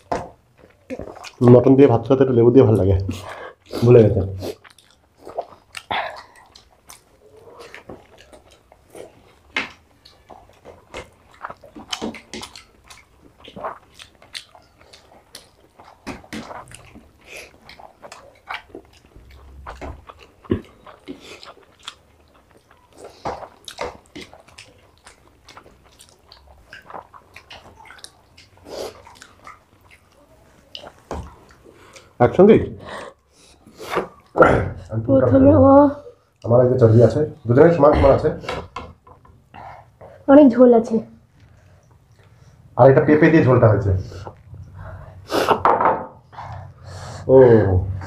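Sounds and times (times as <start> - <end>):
chewing and lip smacking: 0.0 - 1.4, 4.4 - 32.2, 32.9 - 34.4, 41.3 - 42.6.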